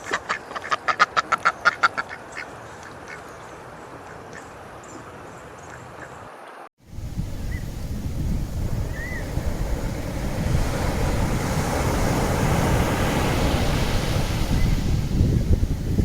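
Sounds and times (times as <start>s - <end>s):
wind buffeting microphone: 6.8s - 16.0s.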